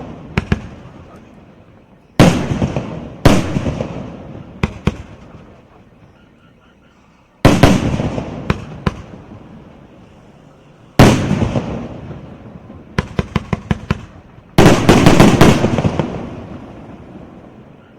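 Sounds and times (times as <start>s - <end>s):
sharp firework cracks: 0.0s - 1.4s, 2.2s - 5.7s, 7.4s - 9.9s, 11.0s - 17.8s
fireworks bursts: 0.0s - 17.9s.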